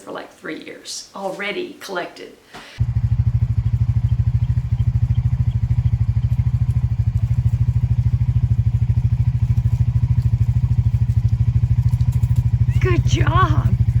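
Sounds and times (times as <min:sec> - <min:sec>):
engine idling: 0:02.8 - 0:14.0.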